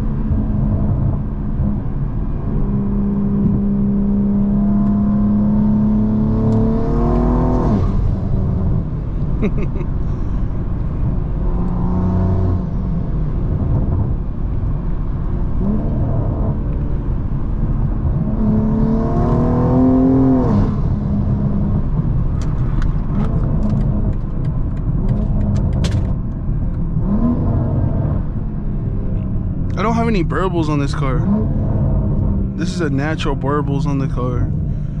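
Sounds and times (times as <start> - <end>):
car engine revving under load: 0.0 - 35.0
exhaust pops and crackles: 22.0 - 26.9.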